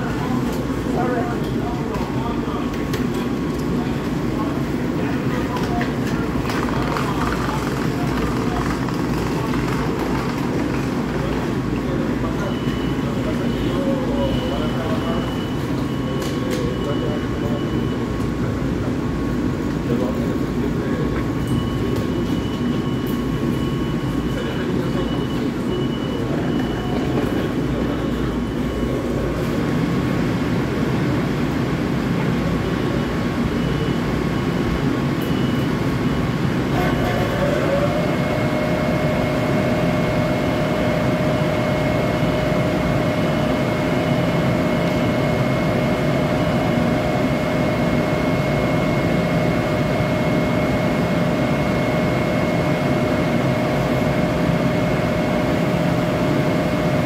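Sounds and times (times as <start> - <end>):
train whine: 21.9 - 57.0.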